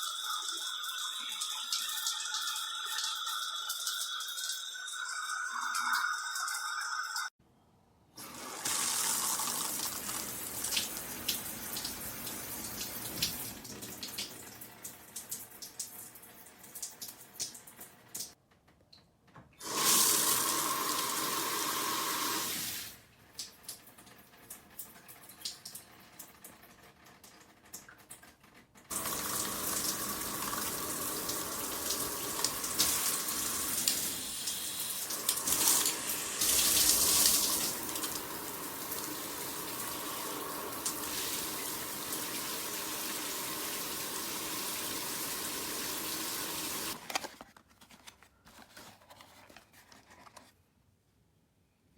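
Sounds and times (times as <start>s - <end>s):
water spraying from shower head: 28.9s - 47.0s.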